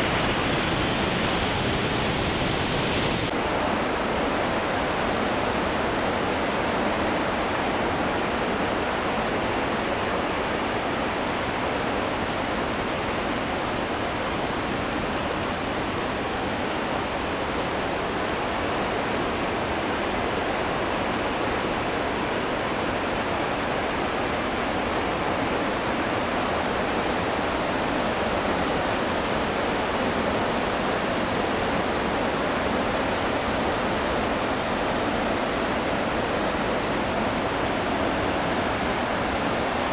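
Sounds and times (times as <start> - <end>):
waterfall roar: 0.0 - 3.3, 20.5 - 39.9.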